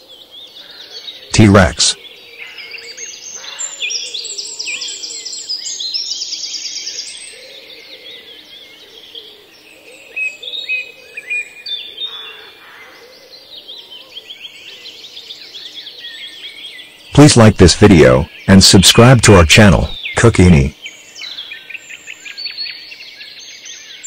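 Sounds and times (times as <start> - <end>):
songbirds chirping and trilling: 0.0 - 24.0
faint outdoor hum: 17.2 - 20.7.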